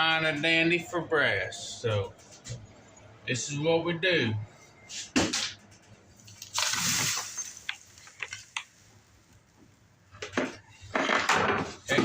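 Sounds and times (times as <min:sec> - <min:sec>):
grit pouring onto screen: 0:06.4 - 0:08.0.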